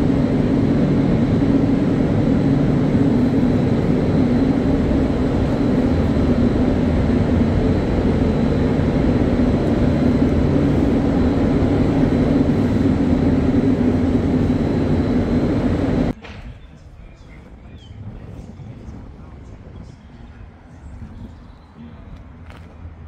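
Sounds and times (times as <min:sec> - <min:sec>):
loud mechanical roar with hum: 0:00.0 - 0:16.2.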